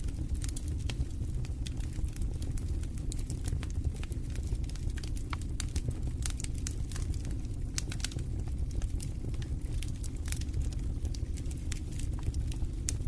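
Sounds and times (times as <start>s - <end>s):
low rumble of flames: 0.0s - 13.0s
wood fire crackling and popping: 0.0s - 13.0s.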